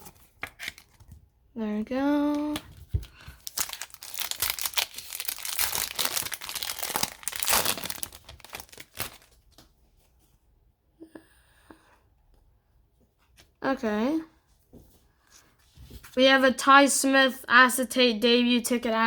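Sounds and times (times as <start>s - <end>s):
foil wrapper tearing and crinkling: 3.2s - 9.4s.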